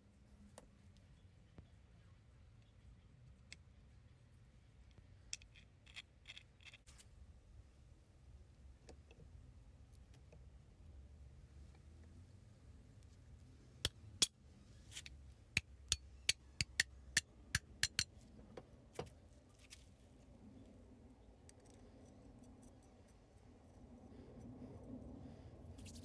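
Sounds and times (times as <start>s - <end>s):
small metal parts clicking: 17.6s - 18.1s.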